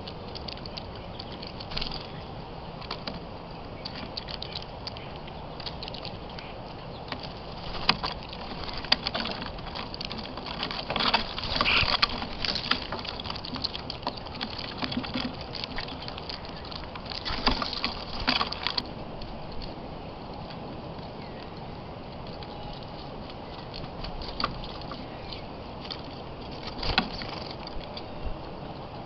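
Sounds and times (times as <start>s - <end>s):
birds pecking at a feeder: 0.0s - 29.0s
bird chirp: 0.6s - 2.8s, 3.4s - 9.0s, 11.1s - 14.8s, 15.7s - 17.7s, 21.0s - 26.6s.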